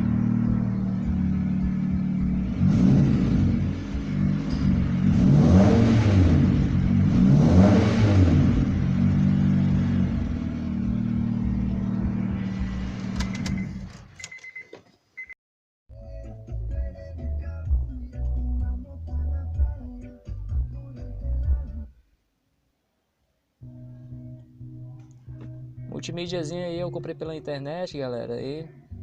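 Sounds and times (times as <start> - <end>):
car engine revving and running: 0.0 - 14.2
engine clicks: 13.0 - 14.9.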